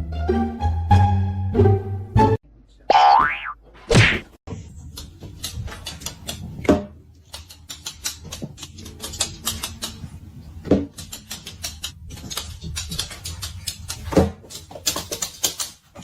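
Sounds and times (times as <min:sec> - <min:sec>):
small clicks and taps: 0:07.2 - 0:10.1, 0:10.9 - 0:16.0.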